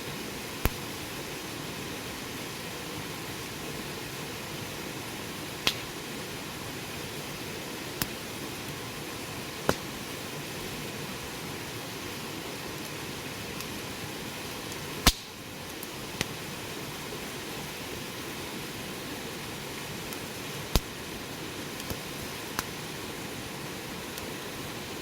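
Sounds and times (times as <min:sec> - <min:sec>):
wood fire hissing: 0:00.0 - 0:25.0.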